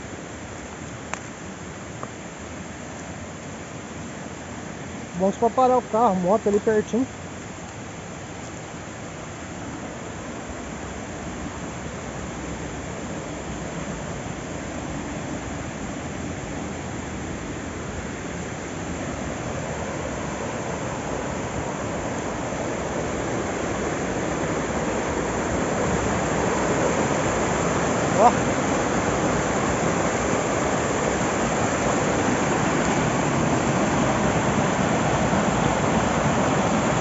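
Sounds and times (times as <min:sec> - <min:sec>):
river water rushing over rocks: 0:00.0 - 0:37.0.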